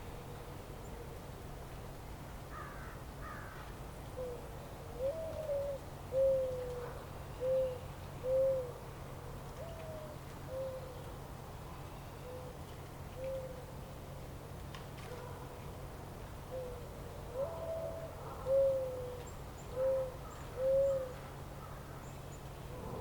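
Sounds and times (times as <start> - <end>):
bird hooting calls: 5.0 - 8.8, 17.4 - 21.8, 22.7 - 23.0
steady low rumble: 22.6 - 23.0.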